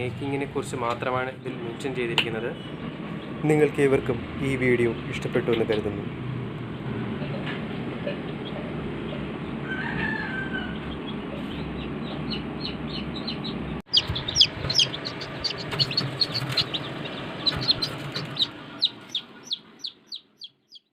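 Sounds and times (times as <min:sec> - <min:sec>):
chicks peeping: 0:07.2 - 0:20.9.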